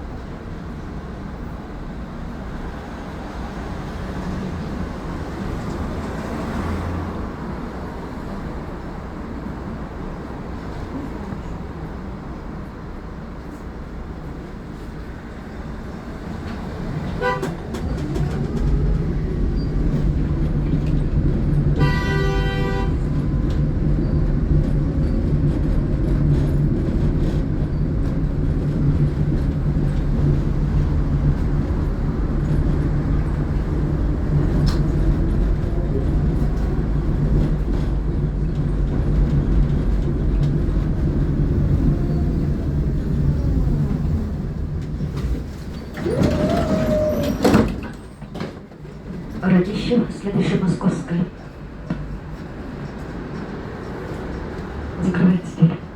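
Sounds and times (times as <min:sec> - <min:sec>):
tram motors and wheels humming: 0:00.0 - 0:55.9
tram warning signal: 0:17.0 - 0:25.4.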